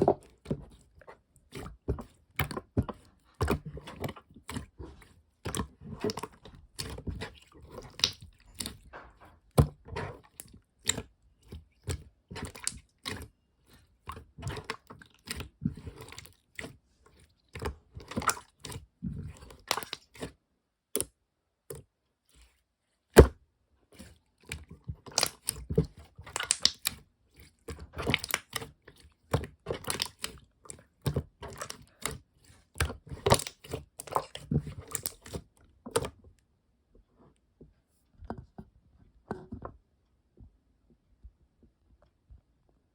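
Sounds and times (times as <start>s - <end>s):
slime popping and crackling: 26.3s - 26.9s.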